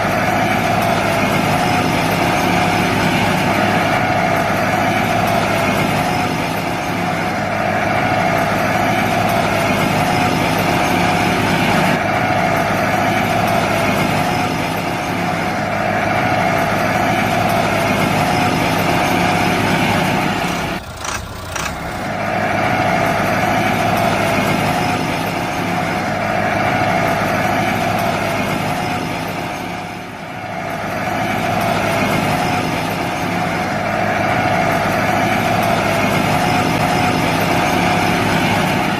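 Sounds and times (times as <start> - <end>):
small motor whining: 20.5 - 22.1.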